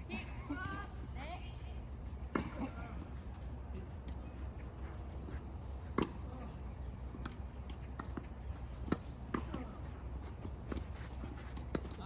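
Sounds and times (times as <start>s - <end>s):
tennis ball bouncing on court: 11.5s - 12.0s.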